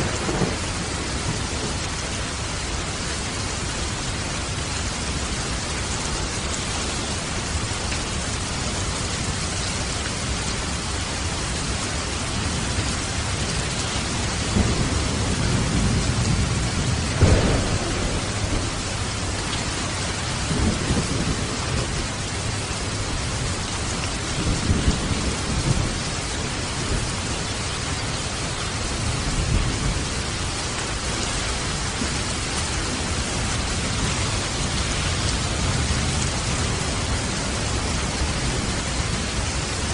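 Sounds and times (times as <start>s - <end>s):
thunder rolling: 0.0s - 1.8s, 14.4s - 22.6s
steady rain falling: 0.0s - 39.9s.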